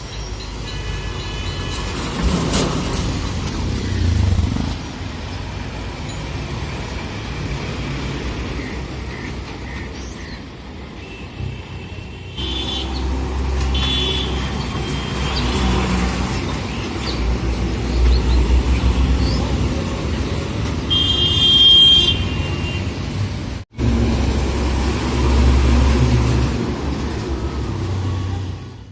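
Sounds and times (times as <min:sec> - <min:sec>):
vehicle horn honking: 0:11.0 - 0:13.1, 0:13.7 - 0:15.5, 0:20.9 - 0:23.0.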